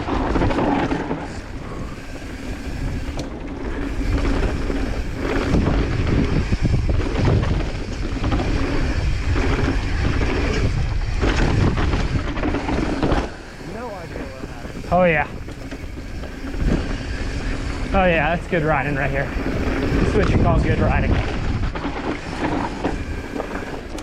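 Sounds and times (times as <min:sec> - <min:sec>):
mountain bike rumbling and rattling: 0:00.0 - 0:24.0
wind buffeting microphone: 0:00.0 - 0:24.0
bike knocking over bumps: 0:04.2 - 0:13.6.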